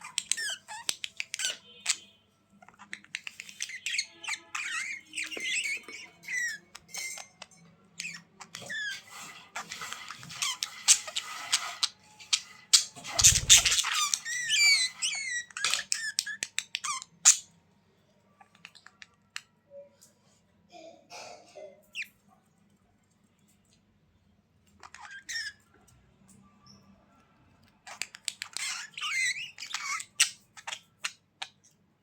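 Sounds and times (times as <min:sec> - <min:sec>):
budgerigars chirping and warbling: 0:00.0 - 0:17.5, 0:27.8 - 0:31.6.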